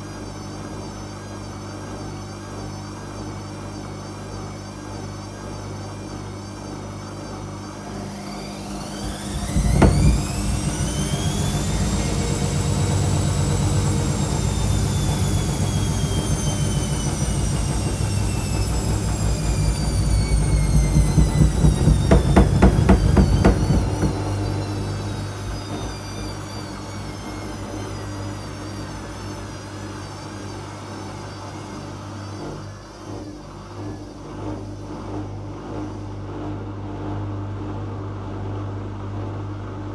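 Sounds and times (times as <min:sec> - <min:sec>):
washing machine motor whine: 0:00.0 - 0:39.8
low hum: 0:07.8 - 0:30.8
washing machine knock: 0:08.6 - 0:26.4
drum thumping rhythmically: 0:18.1 - 0:24.4.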